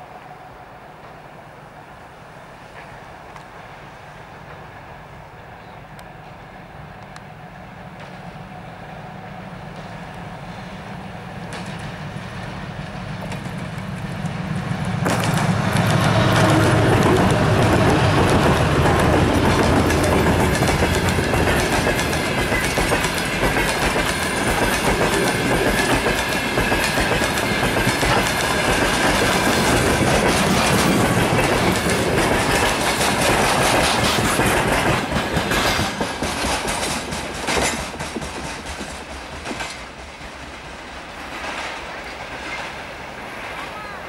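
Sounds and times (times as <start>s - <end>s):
sharp clacks: 15.0s - 40.0s.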